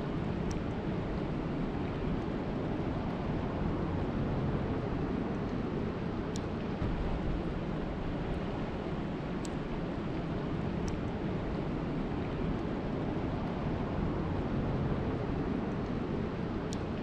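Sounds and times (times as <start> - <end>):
faint ticks: 6.3 - 6.6, 9.4 - 9.7, 10.8 - 11.2, 16.7 - 17.0.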